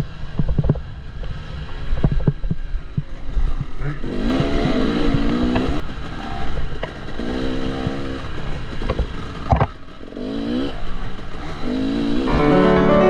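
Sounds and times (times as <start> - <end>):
two-stroke engine revving: 3.5 - 12.7
music: 12.3 - 13.0.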